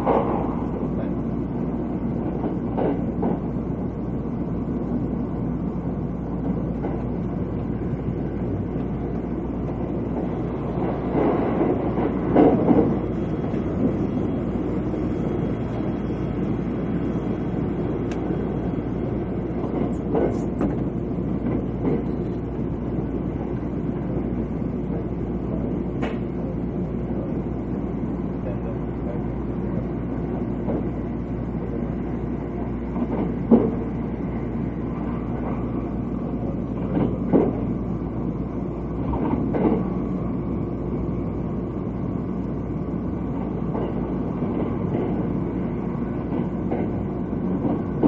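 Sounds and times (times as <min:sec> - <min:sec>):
train wheels rumbling: 0:00.0 - 0:48.0.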